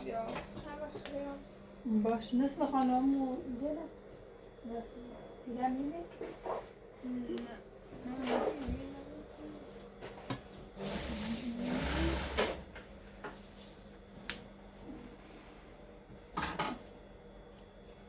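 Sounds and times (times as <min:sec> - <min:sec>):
sewing machine running: 0:10.8 - 0:12.6.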